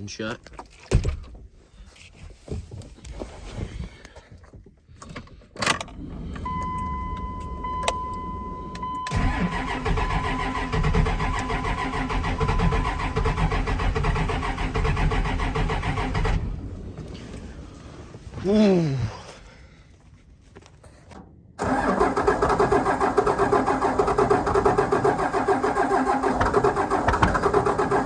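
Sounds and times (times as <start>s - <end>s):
diesel engine cranking: 5.2s - 18.2s, 21.6s - 28.0s
warning chime tone: 6.5s - 9.2s.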